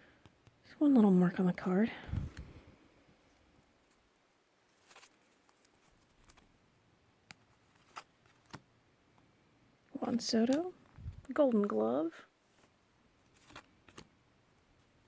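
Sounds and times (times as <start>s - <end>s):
cards clicking and rustling: 4.8s - 6.5s, 7.3s - 8.7s, 12.6s - 14.1s.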